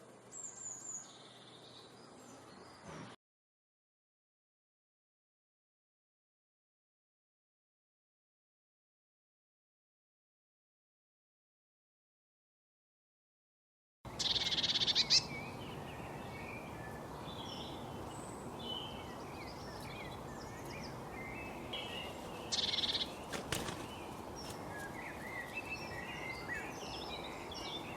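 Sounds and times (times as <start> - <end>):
small birds chirping: 0.0 - 3.2, 14.1 - 27.9
rapid buzzy bird trills: 14.1 - 27.9.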